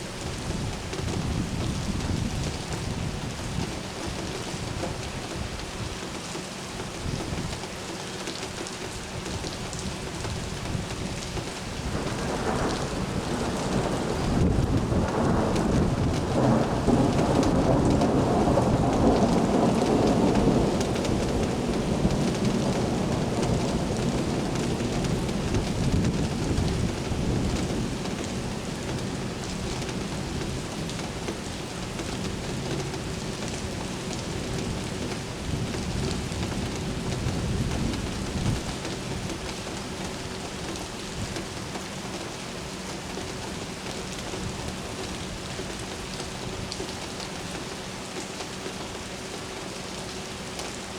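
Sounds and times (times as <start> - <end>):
steady rain: 0.0 - 50.9
thunder rumbling: 11.8 - 39.3.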